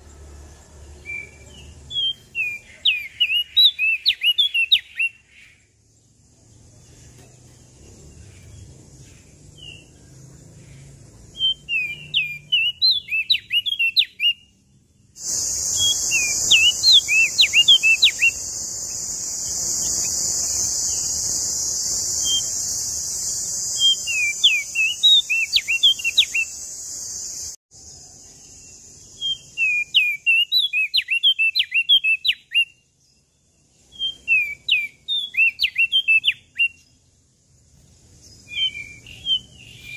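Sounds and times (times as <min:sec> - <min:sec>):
songbird twittering song: 0:00.0 - 0:39.9
steady high hiss: 0:15.2 - 0:29.7.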